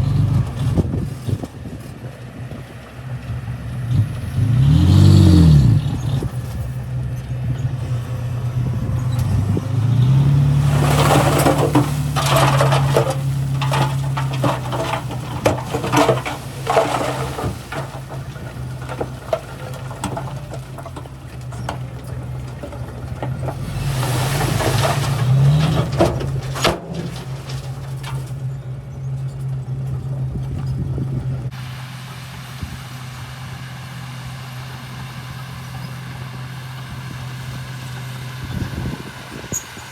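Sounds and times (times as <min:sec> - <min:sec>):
bulldozer diesel engine revving: 0:00.0 - 0:01.7, 0:02.3 - 0:39.9
clattering tracks and stone: 0:00.0 - 0:03.3, 0:03.9 - 0:31.6.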